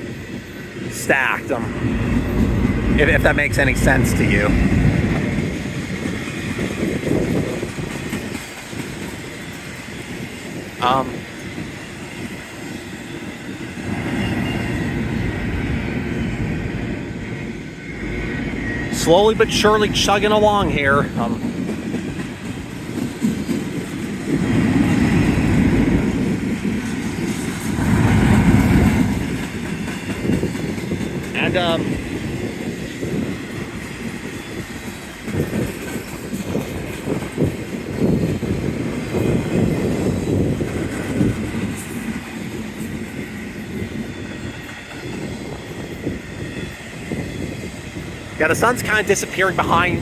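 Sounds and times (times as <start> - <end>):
steel wheels rolling on track: 0.1 - 50.0.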